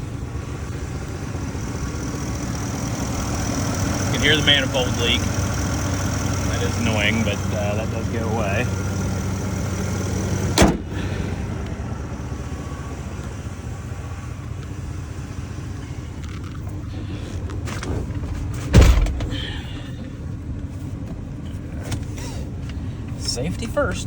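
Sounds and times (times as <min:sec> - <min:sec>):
exhaust leak ticking: 0:00.0 - 0:17.6
truck engine running: 0:00.0 - 0:24.0
sharp thumps: 0:17.8 - 0:19.5.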